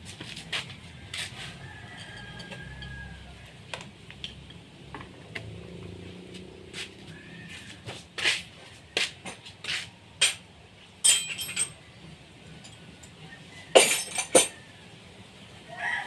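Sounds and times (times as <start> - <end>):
metal objects clinking: 11.0 - 11.8, 12.6 - 14.6.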